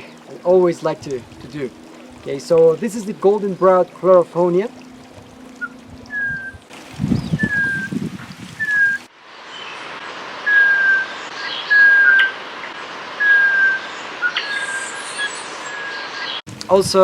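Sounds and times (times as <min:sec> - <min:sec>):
person whistling bird call: 0:05.6 - 0:06.6, 0:07.2 - 0:07.9, 0:08.6 - 0:09.0, 0:10.5 - 0:11.1, 0:11.7 - 0:12.3, 0:13.2 - 0:14.8.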